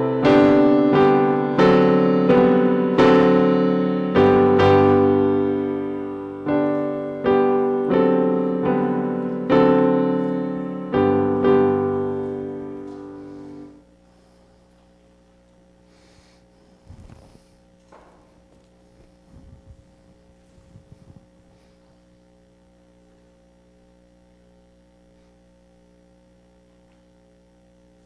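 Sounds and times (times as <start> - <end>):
piano chords: 0.0 - 14.4
low electrical hum: 0.0 - 28.0.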